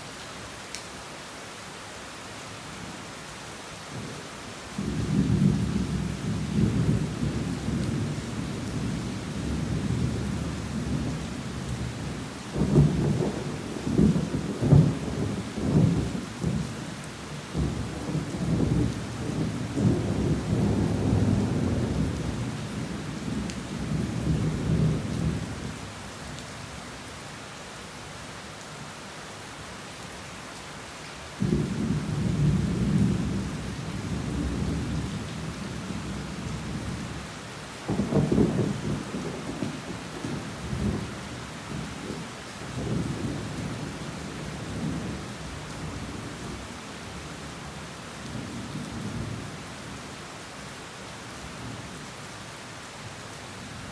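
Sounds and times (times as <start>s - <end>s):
heavy rain falling: 0.0s - 53.9s
thunder rumbling: 37.9s - 45.2s.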